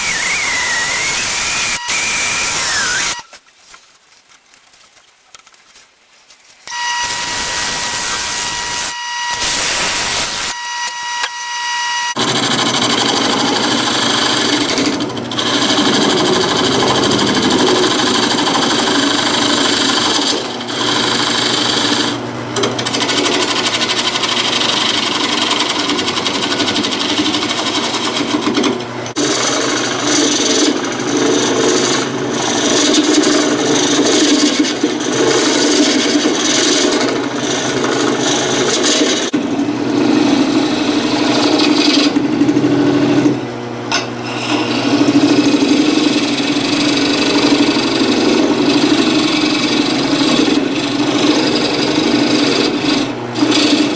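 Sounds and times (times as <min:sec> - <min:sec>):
power tool motor whining: 0:00.0 - 0:03.4, 0:06.7 - 0:15.0.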